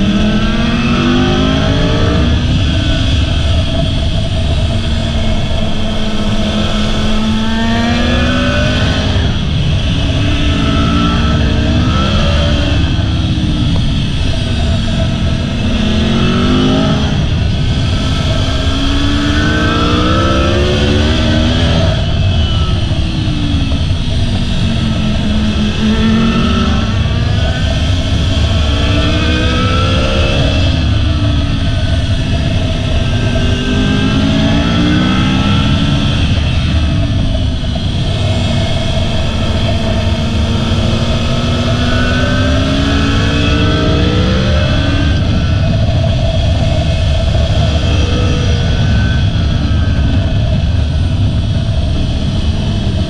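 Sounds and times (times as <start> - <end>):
motorcycle engine revving: 0.0 - 53.0
wind on microphone: 0.0 - 53.0.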